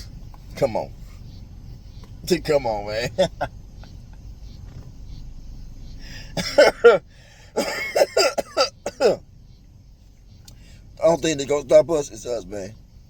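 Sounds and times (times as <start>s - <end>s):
man coughing: 2.8s - 3.6s, 6.1s - 9.2s.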